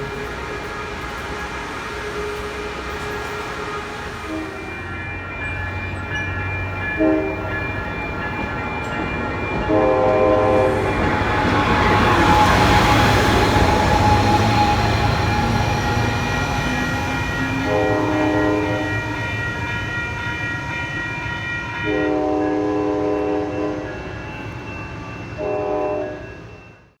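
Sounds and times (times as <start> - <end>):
train horn blasts: 0.0 - 5.0, 7.0 - 7.6, 9.6 - 19.5, 21.8 - 24.0, 25.4 - 26.4
train rumble and rail noise: 0.0 - 27.0.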